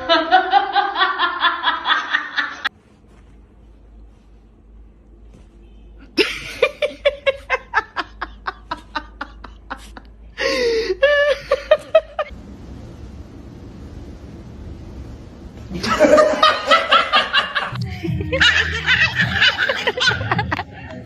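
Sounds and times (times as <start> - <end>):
person laughing: 6.2 - 12.3, 15.7 - 21.0.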